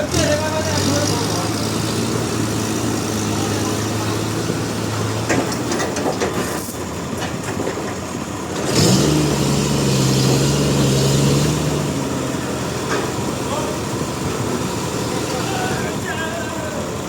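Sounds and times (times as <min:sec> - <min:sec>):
engine running and revving: 0:00.0 - 0:16.1.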